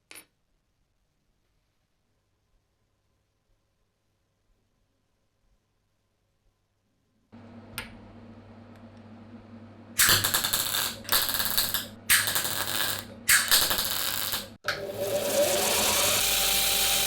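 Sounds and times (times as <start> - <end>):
small power tool whirring: 14.8 - 17.0
loud rasping strokes: 14.9 - 17.0.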